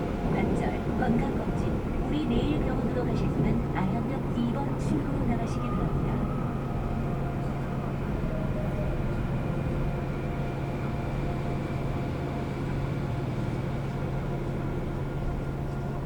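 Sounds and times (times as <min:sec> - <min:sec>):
subway train interior rumble: 0:00.0 - 0:16.0.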